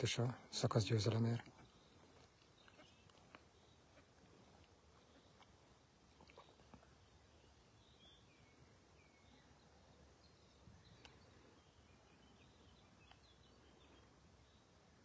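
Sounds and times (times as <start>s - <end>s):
faint bird chirps: 0.0s - 15.0s
faint ticks: 11.0s - 11.2s.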